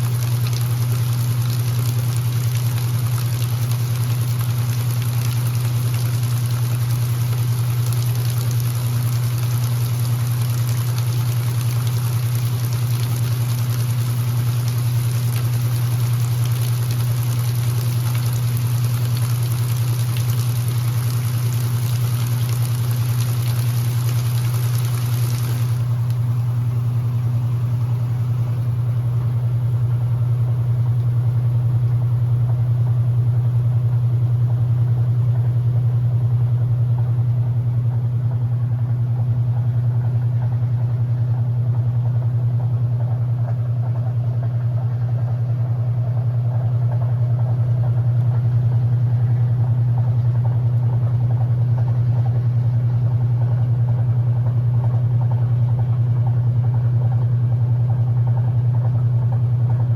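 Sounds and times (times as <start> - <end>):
water hissing: 0.0 - 29.1
washing machine motor hum: 0.0 - 59.9.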